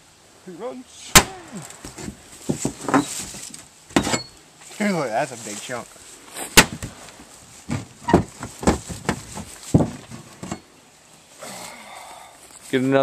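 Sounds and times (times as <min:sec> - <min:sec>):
grunting vocal sounds: 0:11.4 - 0:12.4.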